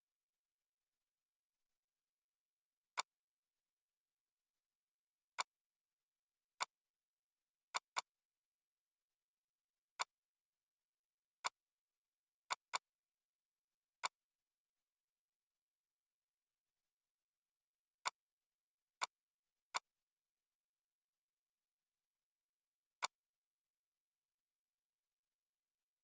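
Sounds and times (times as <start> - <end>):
computer mouse clicks: 7.7 - 8.2, 9.9 - 10.2, 12.5 - 12.9, 14.0 - 14.3, 19.0 - 19.9, 23.0 - 23.2.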